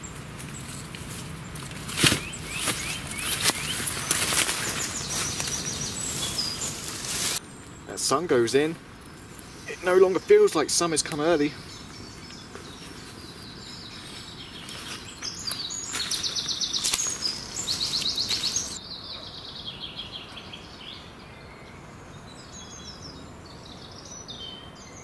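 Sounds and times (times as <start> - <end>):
birds chirping and twittering: 0.0 - 25.0
bird trilling: 2.2 - 7.4, 15.1 - 18.8.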